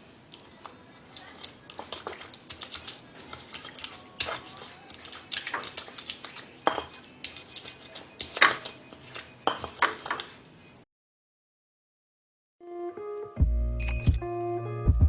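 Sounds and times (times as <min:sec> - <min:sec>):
utensils clinking against dishes: 0:01.3 - 0:10.4.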